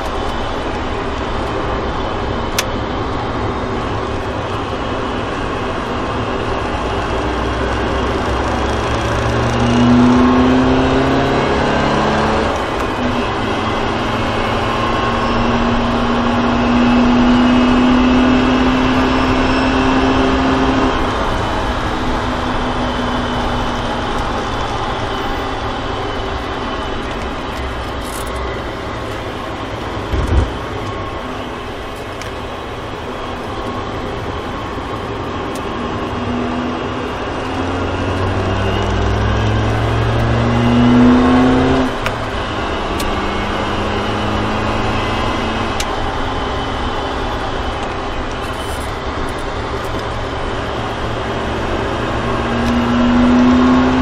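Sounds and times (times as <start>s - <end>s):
car engine revving: 0.0s - 34.2s, 34.8s - 54.0s
tyre and road noise: 20.2s - 54.0s
short thump: 30.1s - 30.6s.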